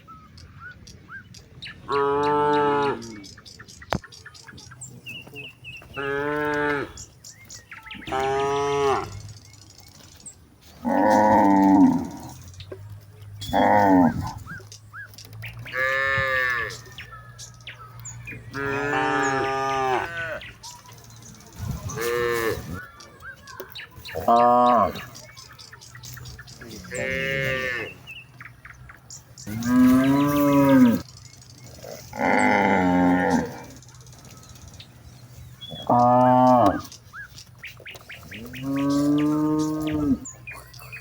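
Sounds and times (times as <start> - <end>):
faint bird chirp: 0.0 - 41.0
cattle mooing: 5.9 - 7.1, 8.0 - 9.2, 10.8 - 12.4, 13.4 - 14.6, 15.6 - 17.0, 18.4 - 20.5, 21.9 - 22.8, 24.2 - 25.1, 26.6 - 28.0, 29.5 - 31.1, 31.8 - 33.8, 35.7 - 36.9, 38.3 - 40.4.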